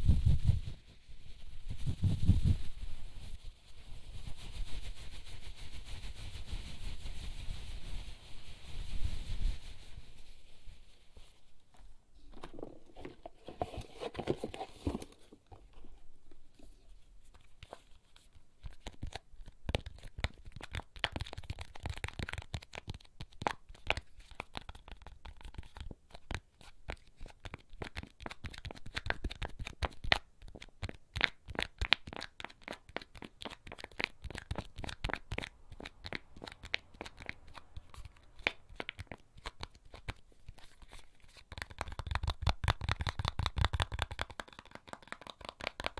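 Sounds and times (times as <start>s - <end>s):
soft crinkly rustle: 0.3s - 20.5s, 32.4s - 41.5s
fingertips tapping and scratching: 17.3s - 45.9s.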